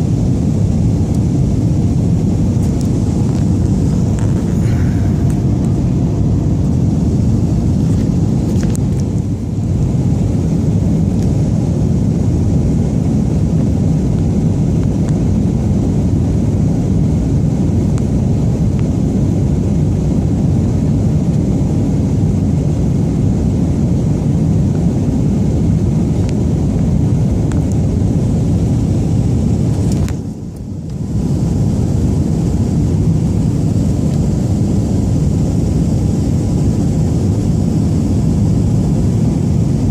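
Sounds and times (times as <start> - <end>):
jet engines roaring in cabin: 0.0 - 39.9.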